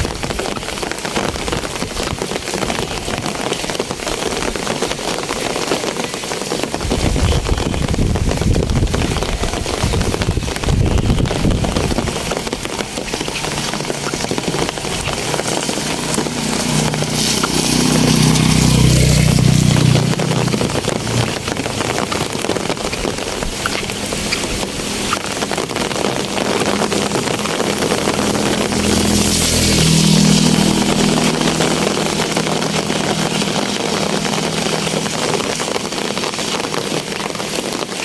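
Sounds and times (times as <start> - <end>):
rain falling: 0.0 - 38.0
motorcycle engine passing: 11.5 - 37.6.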